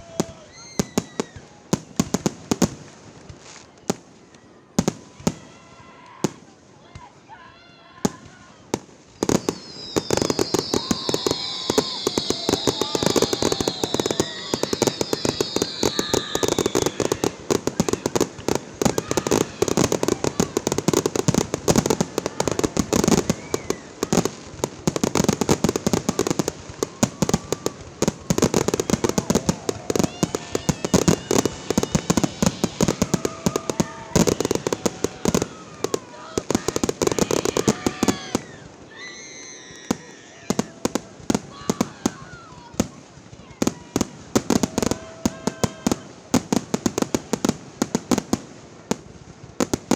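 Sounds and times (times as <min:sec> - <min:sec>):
fireworks bangs and crackles: 0:00.0 - 0:07.4, 0:08.0 - 0:49.9
high shrill whistle: 0:09.2 - 0:17.3, 0:37.3 - 0:40.3.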